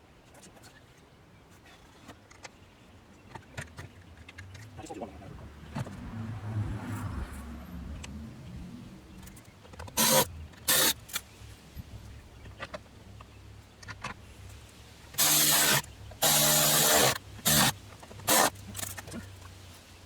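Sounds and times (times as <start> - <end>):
cordless drill driving screws: 10.0 - 11.2, 15.1 - 19.0.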